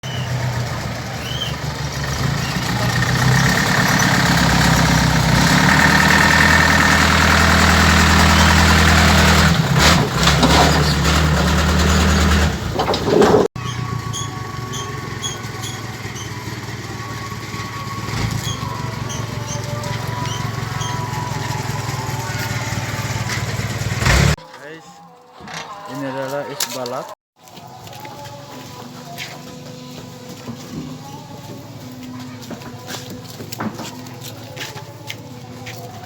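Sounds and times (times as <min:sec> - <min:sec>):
engine running: 0:00.0 - 0:24.4.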